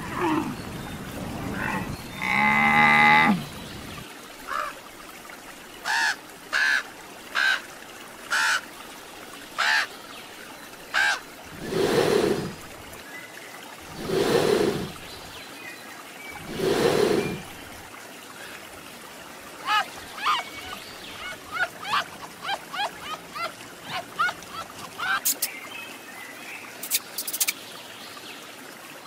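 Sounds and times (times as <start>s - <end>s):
low rough animal calls: 0.0s - 4.0s, 11.0s - 12.8s, 13.8s - 15.3s, 16.4s - 17.6s
crow cawing: 5.8s - 6.8s, 9.6s - 9.9s, 11.0s - 11.2s.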